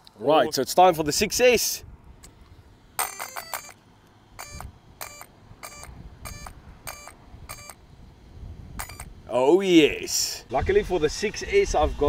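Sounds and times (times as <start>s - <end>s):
short electronic beeps: 3.0s - 3.8s, 4.4s - 7.8s, 8.8s - 9.1s.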